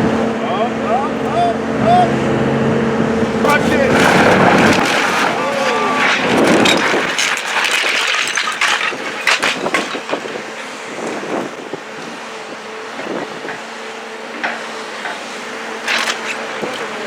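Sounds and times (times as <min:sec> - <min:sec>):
demolition machine engine drone: 0:01.0 - 0:10.3
wood and debris cracking: 0:03.2 - 0:11.6, 0:15.6 - 0:17.0.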